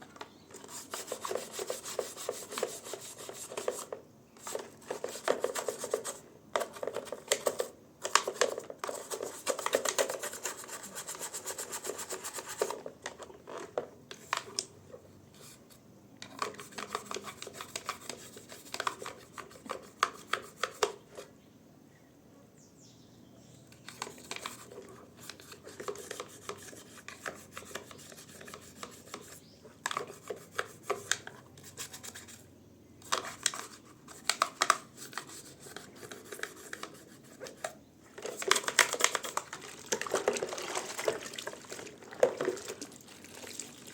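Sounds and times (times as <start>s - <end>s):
hand scrubbing: 0.6s - 6.2s, 38.2s - 43.9s.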